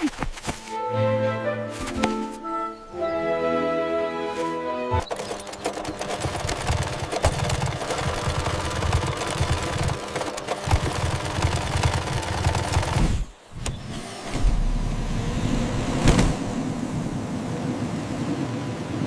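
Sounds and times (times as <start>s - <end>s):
machinery clattering and rattling: 5.0s - 13.1s
low rumble: 13.8s - 18.6s.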